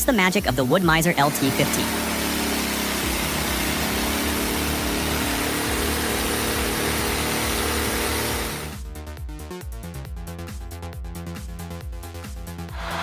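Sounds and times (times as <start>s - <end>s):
band sawmill motor hum: 1.2s - 8.8s, 12.8s - 13.0s.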